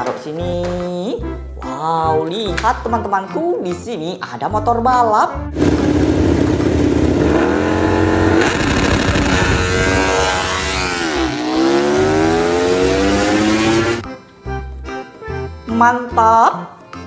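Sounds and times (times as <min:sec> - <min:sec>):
motorcycle engine revving: 0:05.6 - 0:14.0.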